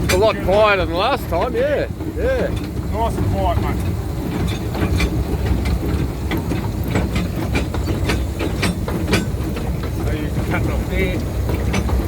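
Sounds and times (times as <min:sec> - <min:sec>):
miniature train rumbling: 0:00.0 - 0:12.0
wheels clicking over rails: 0:00.0 - 0:12.0.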